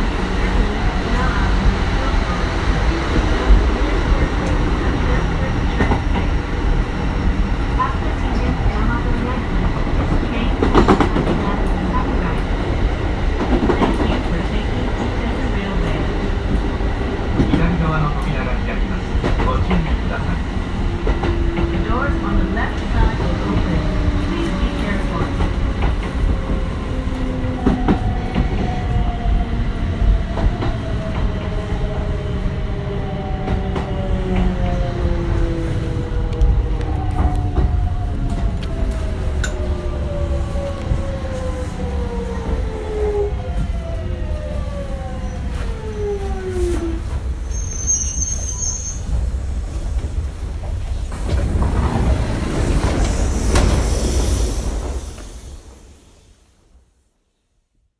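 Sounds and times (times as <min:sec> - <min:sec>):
low train running rumble: 0:00.0 - 0:57.0
brake squeal: 0:47.5 - 0:49.2
rushing noise: 0:49.0 - 0:56.7.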